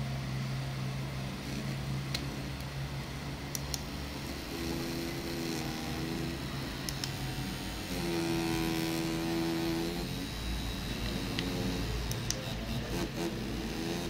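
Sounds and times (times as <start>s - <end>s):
high-pitched motor buzz: 0.0s - 14.0s
low vibration motor buzz: 0.0s - 14.0s.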